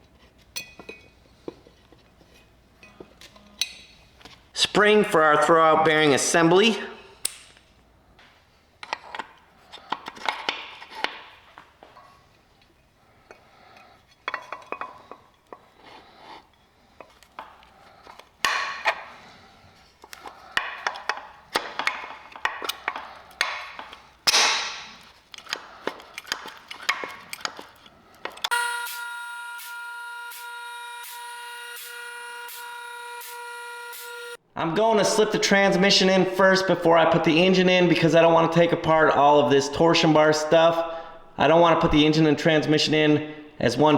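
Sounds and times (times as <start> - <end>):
small metal parts clicking: 20.1 - 28.5
horn-like tone: 28.5 - 34.4.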